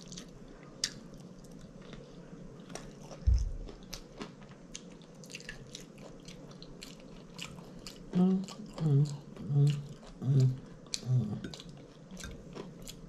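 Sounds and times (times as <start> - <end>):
wet chewing: 2.6 - 13.0.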